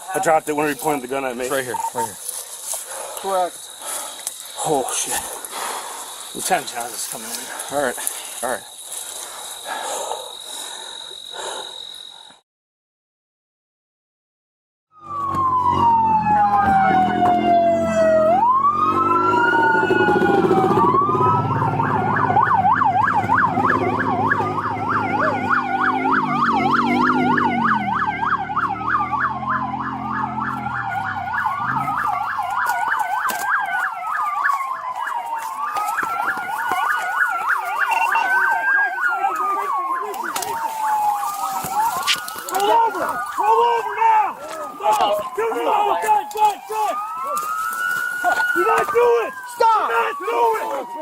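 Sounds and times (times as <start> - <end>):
police siren yelping: 0.0 - 7.9, 14.9 - 51.0
police siren wailing: 0.0 - 11.4, 14.9 - 51.0
vehicle engine droning: 15.0 - 33.1.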